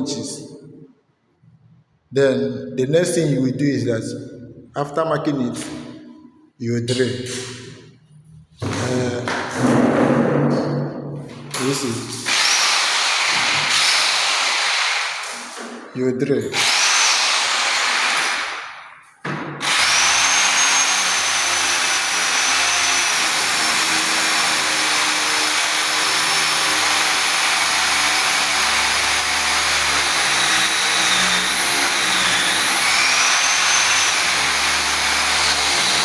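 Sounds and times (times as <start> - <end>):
electric drill whining: 12.2 - 15.4, 16.6 - 18.6, 19.6 - 36.0.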